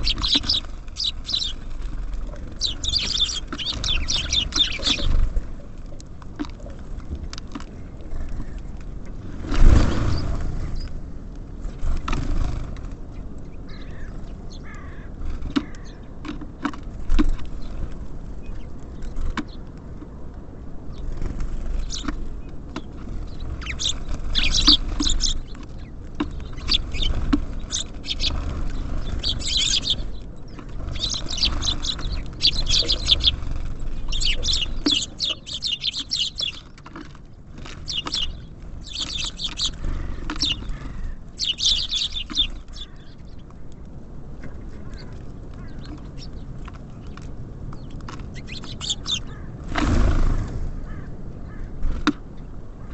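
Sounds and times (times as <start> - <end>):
birds chirping and twittering: 0.0 - 52.9
birds pecking and landing: 0.0 - 52.9
low steady rumble: 0.0 - 52.9.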